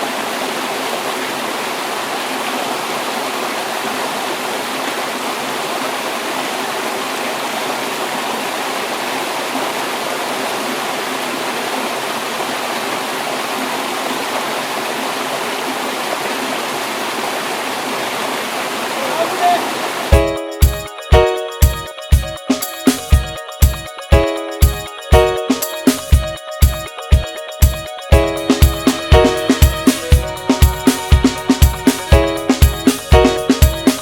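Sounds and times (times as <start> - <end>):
stream rushing over rocks: 0.0 - 20.1.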